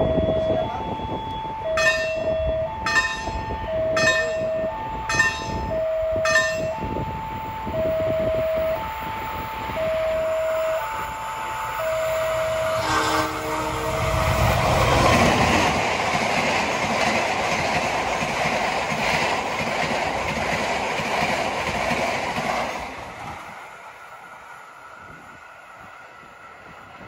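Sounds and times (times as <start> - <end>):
two-tone crossing alarm: 0.0 - 15.9
train passing at speed: 0.0 - 27.0
train horn blast: 9.8 - 15.5.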